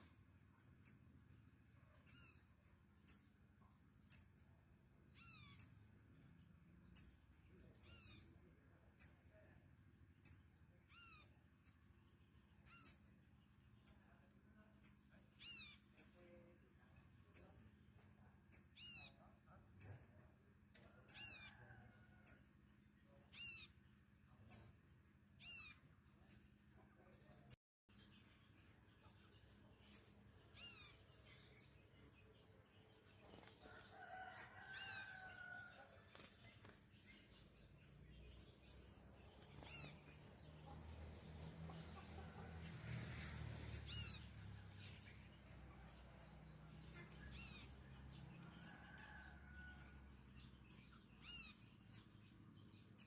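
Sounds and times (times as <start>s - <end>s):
small bird chirping: 0.8s - 1.1s, 1.9s - 4.4s, 5.1s - 5.9s, 6.8s - 9.6s, 10.2s - 16.5s, 18.5s - 20.1s, 20.9s - 22.5s, 23.1s - 23.8s, 25.4s - 26.6s, 27.3s - 53.0s
small songbird calling: 5.1s - 5.8s, 50.7s - 52.1s.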